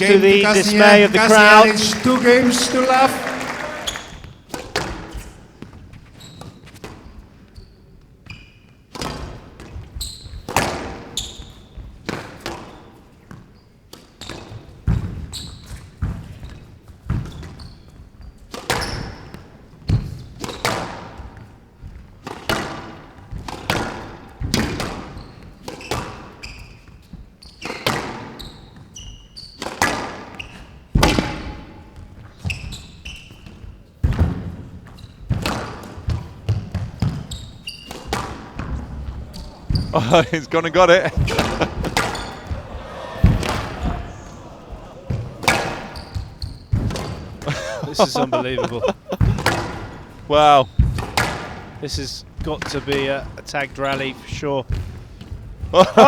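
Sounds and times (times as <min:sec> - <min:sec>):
shoes squeaking on court floor: 0:06.0 - 0:06.9, 0:32.3 - 0:33.7, 0:34.8 - 0:47.4
squash ball hitting rackets and walls: 0:34.0 - 0:39.9, 0:41.2 - 0:43.8.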